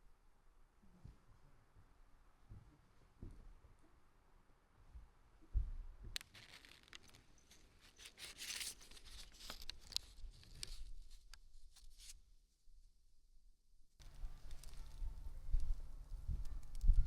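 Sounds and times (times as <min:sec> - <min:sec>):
faint rustling and crinkling: 0:04.8 - 0:13.0, 0:14.0 - 0:17.0.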